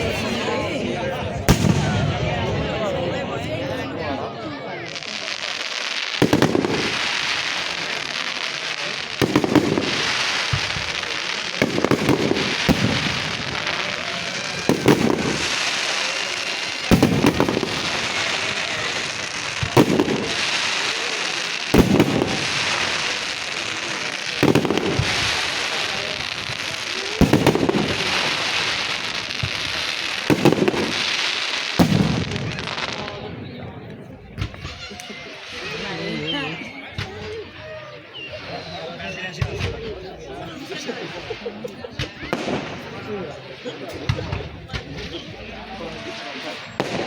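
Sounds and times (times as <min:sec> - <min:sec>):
fireworks crackling: 0:00.0 - 0:47.0
firework shells booming: 0:01.4 - 0:02.6, 0:05.0 - 0:33.4, 0:42.0 - 0:43.2, 0:43.9 - 0:47.0.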